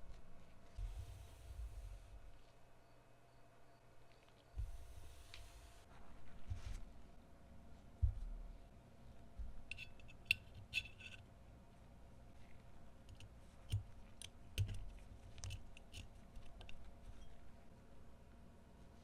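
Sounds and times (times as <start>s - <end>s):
metal parts clicking and knocking: 9.7s - 11.2s, 13.1s - 16.9s.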